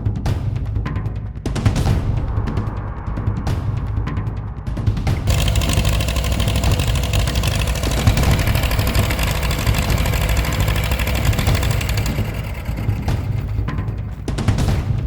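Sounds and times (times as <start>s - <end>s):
tractor engine running: 5.2s - 14.7s.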